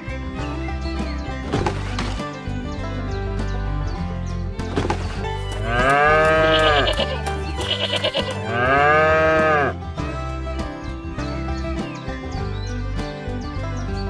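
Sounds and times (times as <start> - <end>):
background music: 0.0 - 14.0
animal bleating: 5.4 - 9.9.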